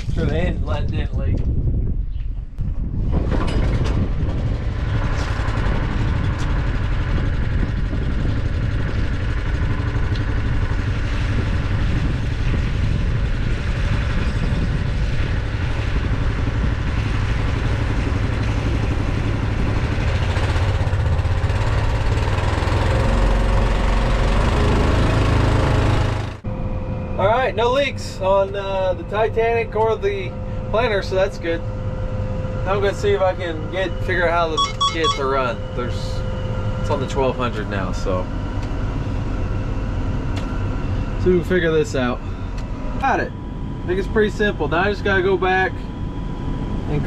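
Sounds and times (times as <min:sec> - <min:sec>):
engine idling: 0:17.5 - 0:26.5.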